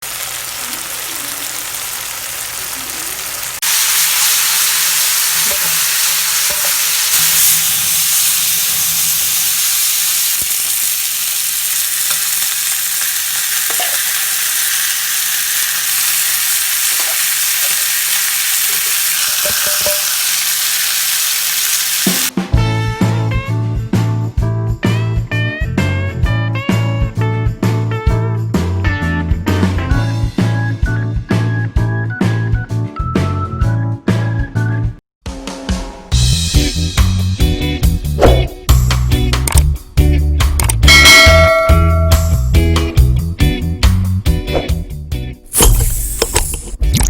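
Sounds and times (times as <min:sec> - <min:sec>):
fish sizzling in hot oil: 0:00.0 - 0:22.3.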